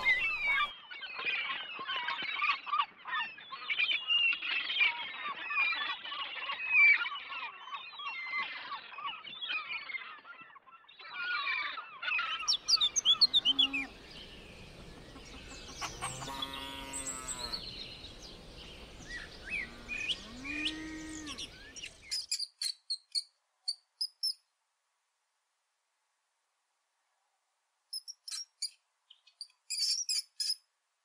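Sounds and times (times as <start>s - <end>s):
gulls calling: 0.0s - 0.7s, 12.3s - 22.2s
cow mooing: 13.1s - 14.2s, 15.8s - 18.0s, 19.2s - 21.6s.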